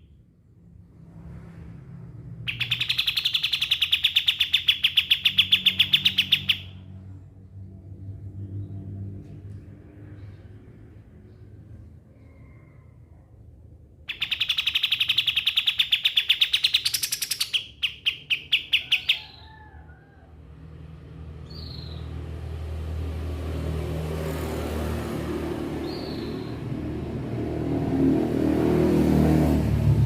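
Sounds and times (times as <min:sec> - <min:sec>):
bird fast trill: 0:02.5 - 0:06.8, 0:14.1 - 0:19.5.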